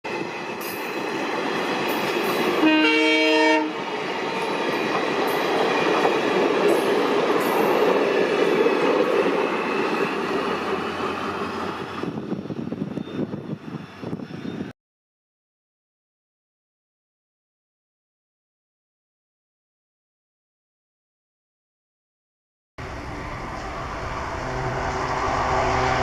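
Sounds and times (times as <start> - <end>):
locomotive horn blast: 2.6 - 3.8, 22.9 - 26.0
train wheels rumbling and rattling: 3.8 - 14.7.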